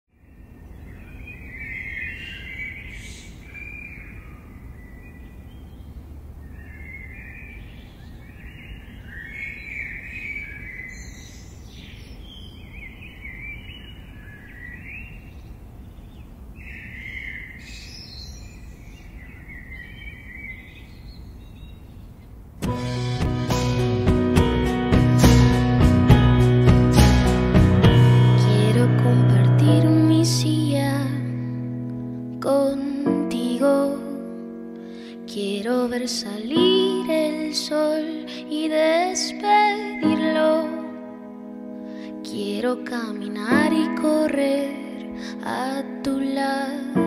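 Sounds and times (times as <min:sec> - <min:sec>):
wild birds chirping and warbling: 0:00.2 - 0:22.4
music: 0:22.6 - 0:47.0.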